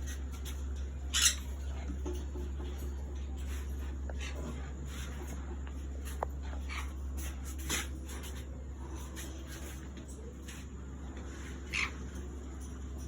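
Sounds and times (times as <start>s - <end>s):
steady low hum: 0.0s - 13.0s
animal squeaks and chirps: 1.1s - 1.6s.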